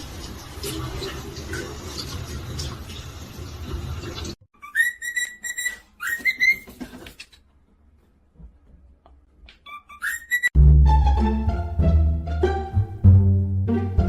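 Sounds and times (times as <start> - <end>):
high whistled notes: 4.6 - 6.6, 9.7 - 10.6.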